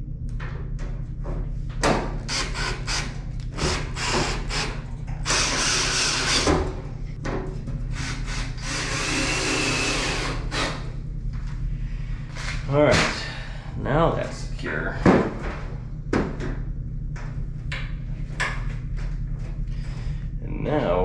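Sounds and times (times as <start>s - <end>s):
power drill driving screws: 5.3s - 6.5s, 8.0s - 10.8s.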